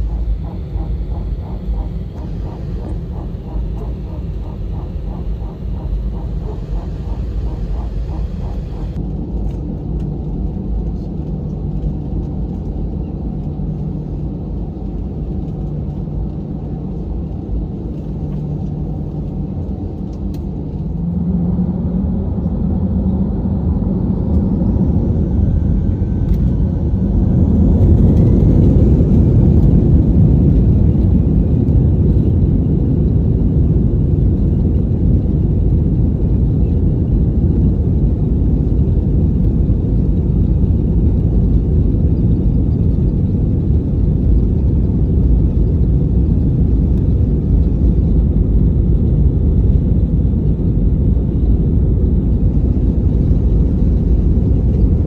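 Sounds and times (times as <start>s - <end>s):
jet engines spooling up: 0.0s - 9.1s
low engine rumble in cabin: 0.0s - 55.0s.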